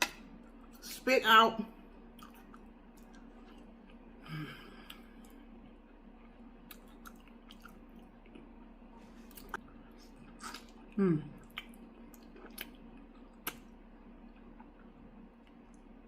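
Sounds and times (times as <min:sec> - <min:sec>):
close chewing: 0:06.2 - 0:08.5, 0:09.2 - 0:13.6.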